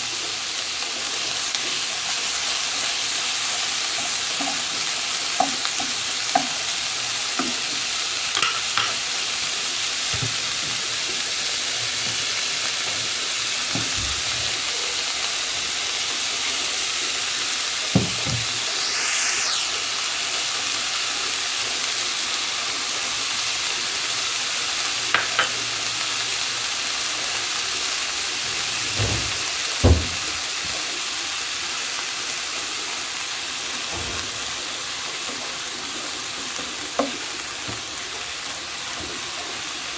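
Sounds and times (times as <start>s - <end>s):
food sizzling in a pan: 0.0s - 39.9s
spatula knocking against pan: 5.4s - 6.6s.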